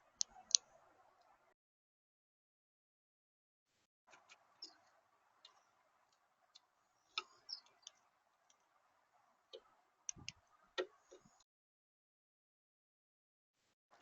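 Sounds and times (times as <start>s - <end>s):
birds ticking and clicking: 0.0s - 1.5s, 4.1s - 11.4s
quiet hiss: 0.0s - 1.6s, 3.7s - 11.4s.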